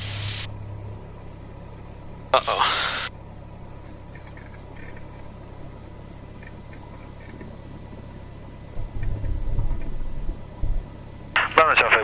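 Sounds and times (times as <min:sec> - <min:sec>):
light aircraft engine drone: 0:00.0 - 0:12.0.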